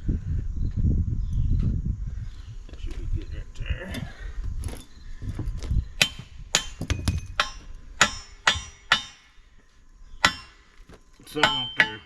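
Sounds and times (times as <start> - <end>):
hammer striking steel: 6.0 - 9.3, 10.2 - 10.6, 11.3 - 12.0.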